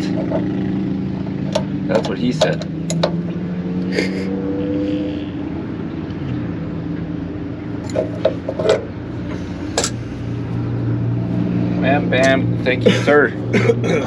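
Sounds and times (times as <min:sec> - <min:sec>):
engine idling: 0:00.0 - 0:03.2, 0:07.4 - 0:14.0.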